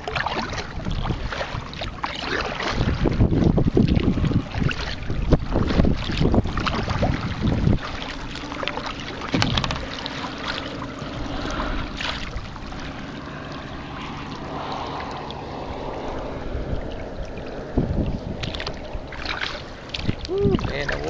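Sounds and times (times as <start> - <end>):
short knocks or splashes: 0.0 - 10.8
water lapping against hull: 0.0 - 21.0
wind on microphone: 0.0 - 21.0.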